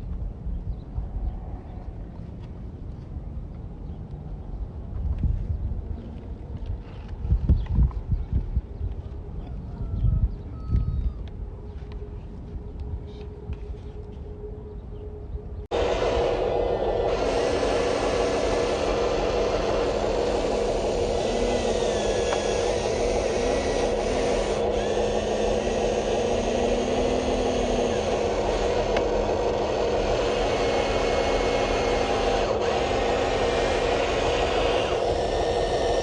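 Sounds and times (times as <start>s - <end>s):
small electric motors whirring: 15.7s - 36.0s.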